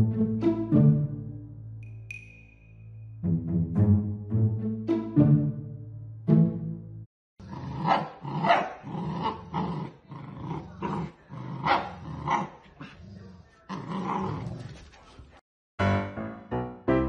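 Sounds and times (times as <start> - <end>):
puppy growling and barking: 7.4 - 14.7.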